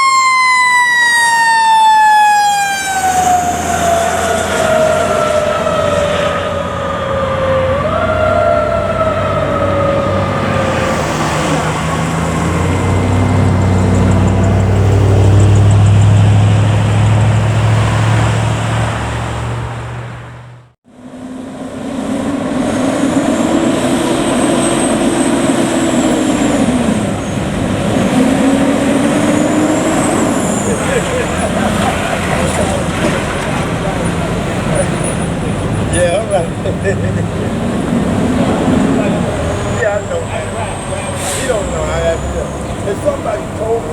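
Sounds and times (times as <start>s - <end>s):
diesel engine rumble passing: 0.0s - 43.9s
fire truck siren: 0.0s - 43.9s.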